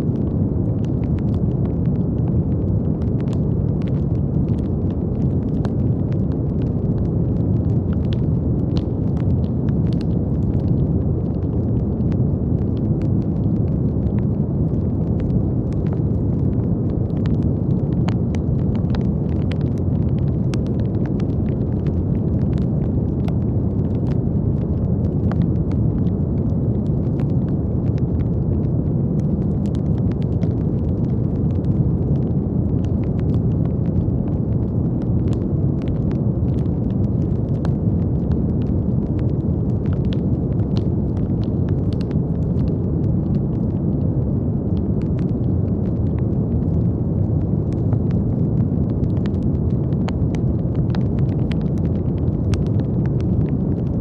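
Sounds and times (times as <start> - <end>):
brown noise rumbling hiss: 0.0 - 54.0.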